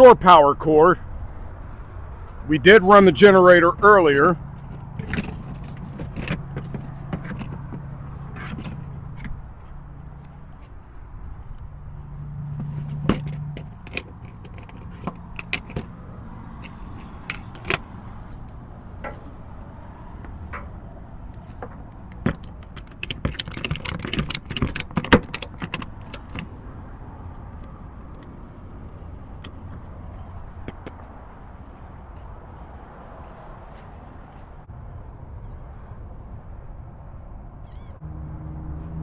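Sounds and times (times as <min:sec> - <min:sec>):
steady low rumble: 0:00.0 - 0:39.0
metallic clicks and clatter: 0:03.8 - 0:26.6.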